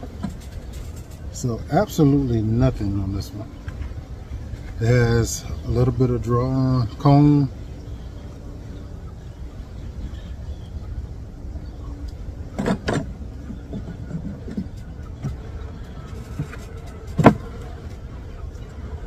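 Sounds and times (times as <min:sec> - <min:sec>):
wooden frames knocking on hive: 0:12.5 - 0:17.8.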